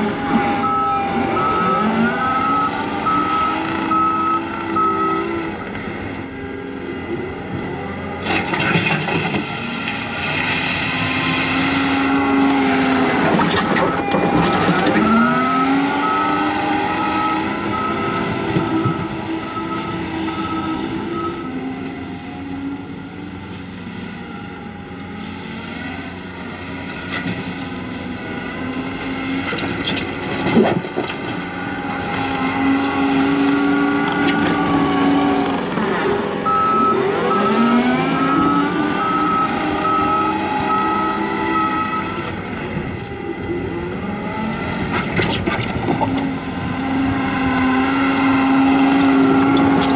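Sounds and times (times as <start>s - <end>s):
diesel engine revving: 0.0s - 49.9s
reverse alarm beeping: 0.2s - 5.6s, 13.6s - 21.8s, 36.4s - 42.4s.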